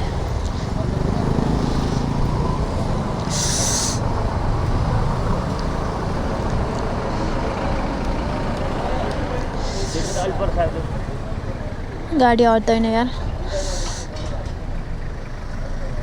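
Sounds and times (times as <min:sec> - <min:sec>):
traffic engines running: 0:00.0 - 0:16.0
air release hiss: 0:03.3 - 0:04.0, 0:13.6 - 0:14.2.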